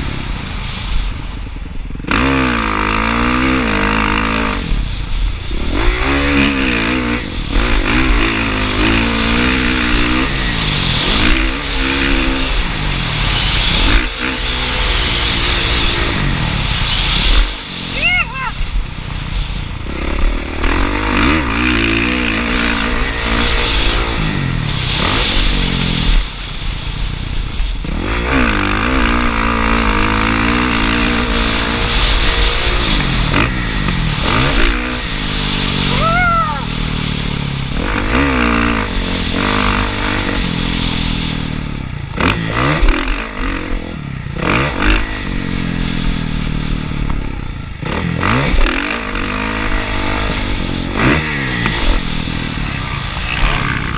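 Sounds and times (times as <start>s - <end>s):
motocross bike engine revving: 0.0s - 53.9s.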